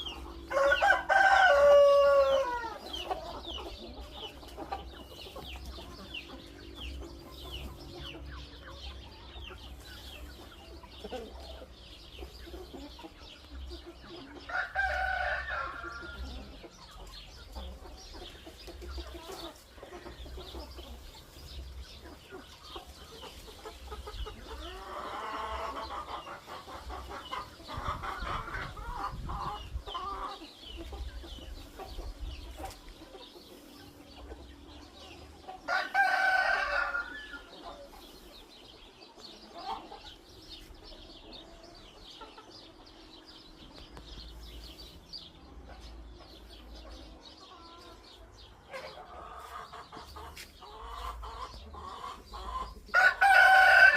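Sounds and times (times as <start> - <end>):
hens clucking: 0.0 - 53.9
small birds chirping: 0.0 - 53.9
rooster crowing: 0.5 - 2.8, 14.5 - 16.1, 35.7 - 37.3, 52.9 - 53.9.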